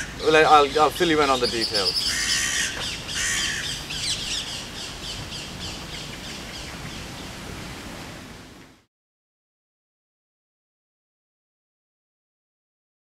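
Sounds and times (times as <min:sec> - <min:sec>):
faint high bird calls: 0:00.0 - 0:07.3
harsh bird calls: 0:00.0 - 0:07.4.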